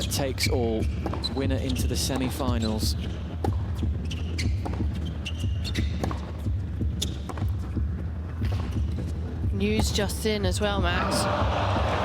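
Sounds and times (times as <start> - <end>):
shoes squeaking: 0.0 - 9.2
low hum of hall: 0.0 - 12.0
tennis ball bouncing: 0.8 - 10.0.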